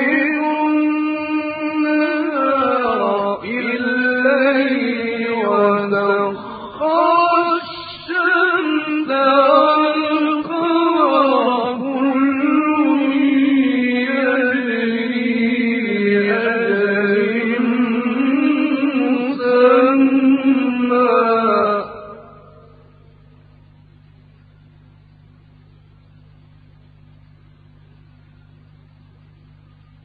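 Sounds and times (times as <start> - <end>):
man chanting melodically: 0.0 - 22.9.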